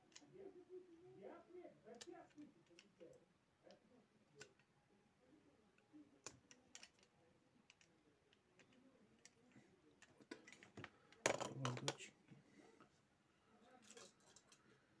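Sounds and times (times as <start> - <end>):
faint clicks of small parts: 0.0 - 0.4, 1.8 - 4.7, 5.7 - 12.1, 13.6 - 15.0.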